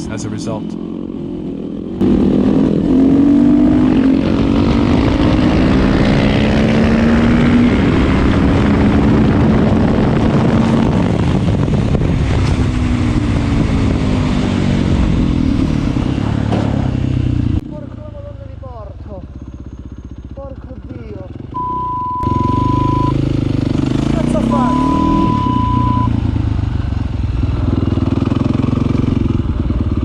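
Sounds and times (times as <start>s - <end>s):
motorcycle engine at high revs: 0.0s - 30.0s
wind rushing: 2.7s - 17.0s.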